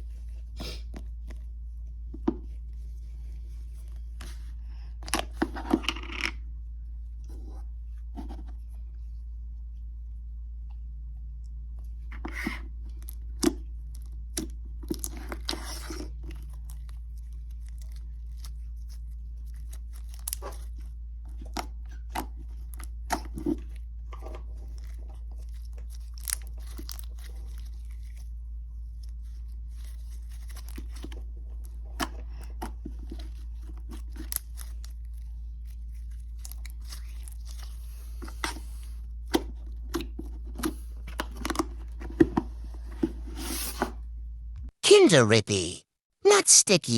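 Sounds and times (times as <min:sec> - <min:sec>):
hands squishing slime: 0:12.3 - 0:41.6.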